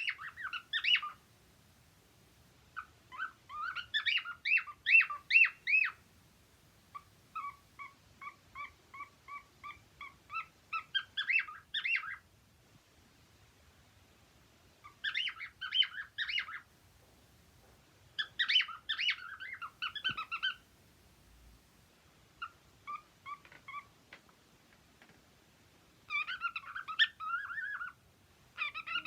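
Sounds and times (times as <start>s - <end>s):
cockatiels chirping and whistling: 0.0s - 1.2s, 2.8s - 6.0s, 6.9s - 12.2s, 14.8s - 16.7s, 18.2s - 20.6s, 22.4s - 23.9s, 26.1s - 28.0s, 28.6s - 29.0s.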